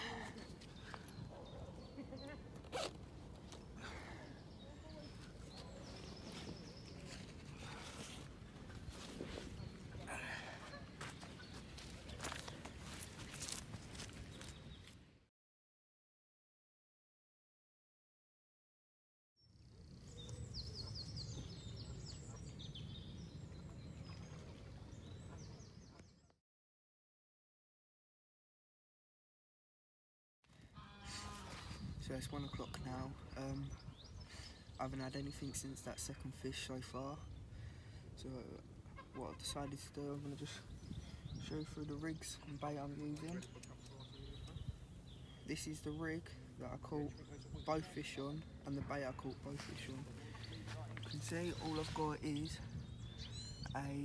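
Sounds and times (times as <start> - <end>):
small birds chirping: 0.0 - 15.1, 19.4 - 26.4, 30.9 - 54.0
zip being pulled: 2.6 - 3.0.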